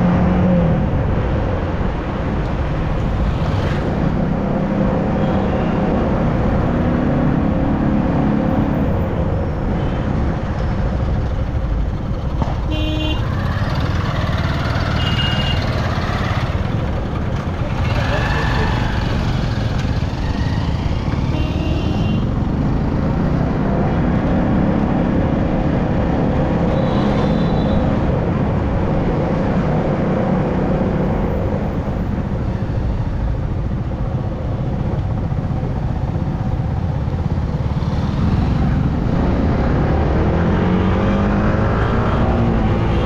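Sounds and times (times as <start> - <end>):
wind and road noise: 0.0 - 43.0
motorcycle engine running: 11.4 - 23.4.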